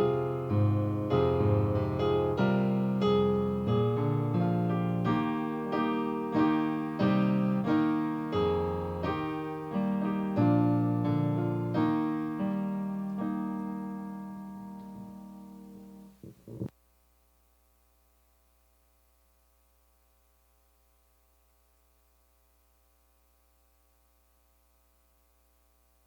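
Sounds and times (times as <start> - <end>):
solo piano playing: 0.0 - 16.7.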